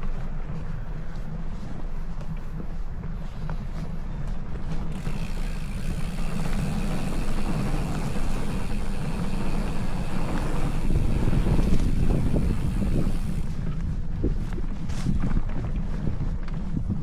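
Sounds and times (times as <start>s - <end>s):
wind buffeting microphone: 0.0s - 17.0s
tyre and road noise: 4.5s - 15.8s.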